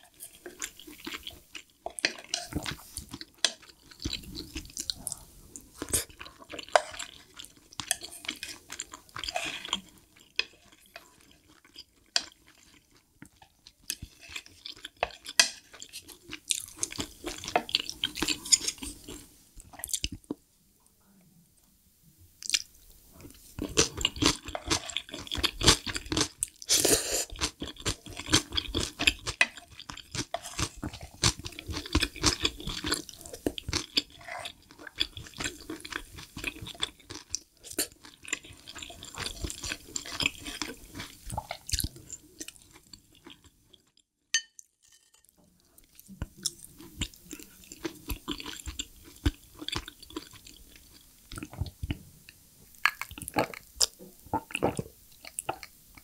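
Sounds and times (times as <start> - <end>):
close chewing: 22.4 - 43.5, 45.7 - 52.0.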